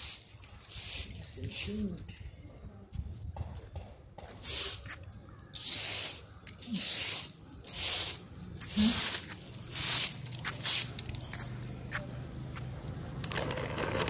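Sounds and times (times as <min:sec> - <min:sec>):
broom sweeping dry leaves: 0:00.0 - 0:01.9, 0:04.4 - 0:11.5.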